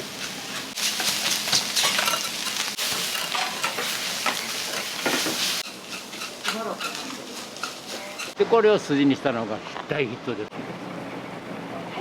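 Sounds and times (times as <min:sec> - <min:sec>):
food sizzling on a griddle: 0:00.0 - 0:08.4
metal spatulas scraping and tapping: 0:00.2 - 0:08.4.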